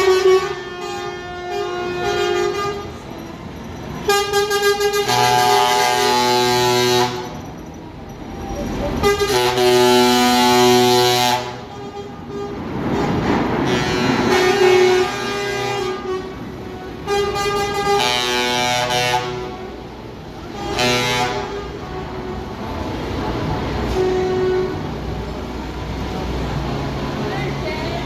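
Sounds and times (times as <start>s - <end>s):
truck air horn blasts: 0.0s - 3.0s, 4.0s - 7.4s, 9.0s - 23.0s, 23.8s - 25.3s
traffic noise: 0.0s - 28.0s.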